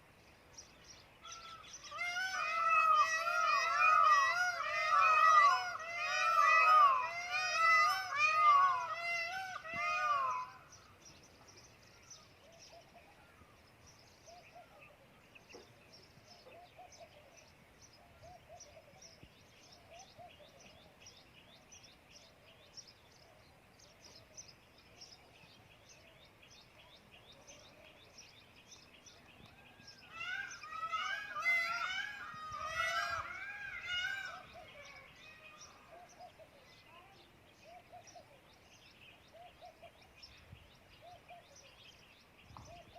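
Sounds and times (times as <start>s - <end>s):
high chirping birdsong: 0.0s - 42.9s
soft low bird calls: 0.0s - 42.9s
loud arching bird call: 1.2s - 10.9s, 29.8s - 36.2s.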